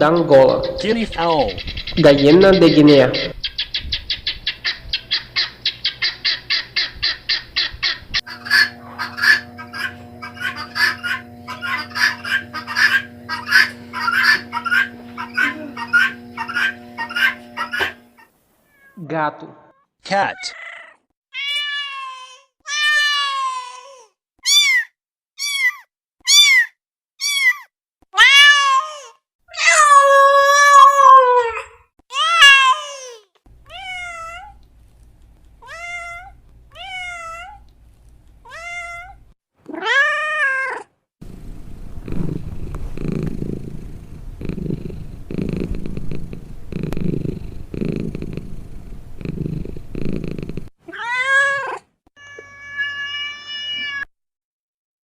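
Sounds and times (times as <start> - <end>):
cat purring: 8.4 - 18.2, 41.2 - 50.7
cat meowing: 18.6 - 19.0, 20.4 - 34.6, 35.6 - 37.7, 38.4 - 40.9, 50.9 - 54.1.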